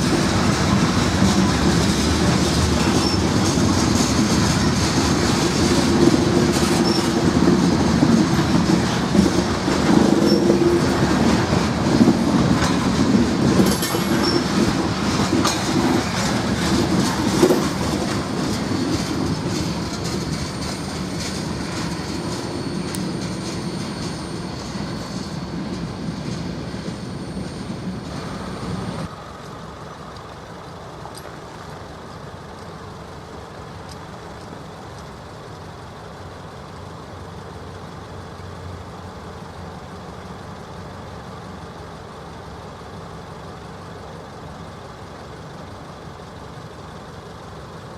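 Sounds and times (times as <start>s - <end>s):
freight train wheels clattering: 0.0s - 30.1s
thin wheel squeal: 2.9s - 3.4s, 6.7s - 7.2s, 10.2s - 10.9s, 13.9s - 14.6s, 20.1s - 29.1s.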